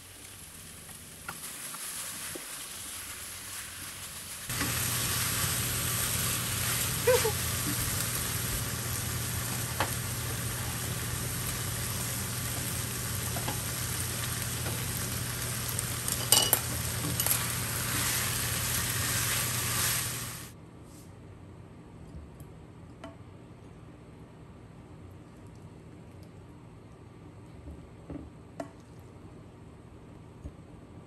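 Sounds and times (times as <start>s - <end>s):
food sizzling in a frying pan: 0.0s - 20.6s.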